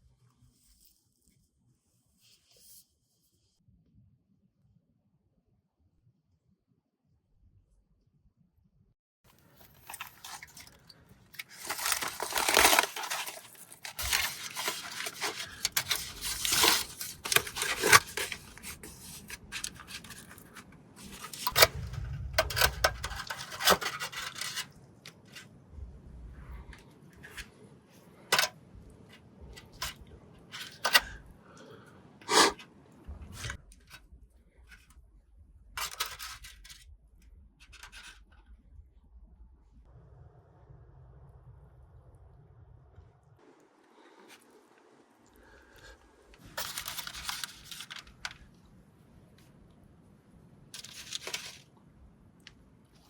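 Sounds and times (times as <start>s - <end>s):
crinkly material rustling and tearing: 9.3s - 25.5s, 46.3s - 48.5s, 50.8s - 51.7s.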